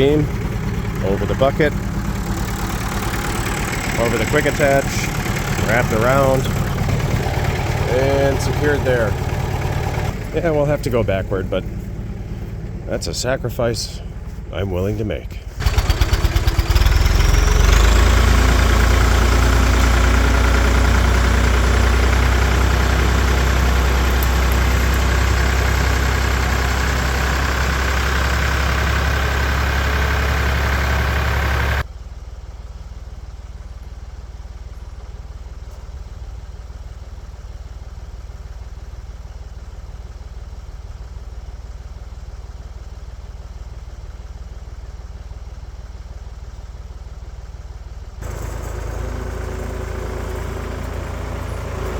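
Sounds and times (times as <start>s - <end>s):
lawn tractor engine running: 0.0s - 31.9s, 48.2s - 51.9s.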